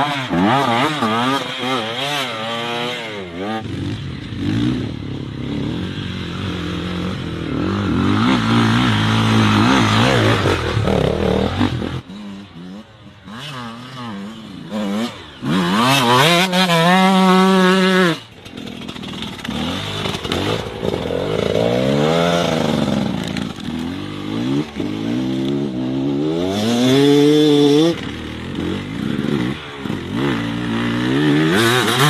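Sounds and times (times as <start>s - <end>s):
dirt bike engines revving: 0.0s - 32.0s.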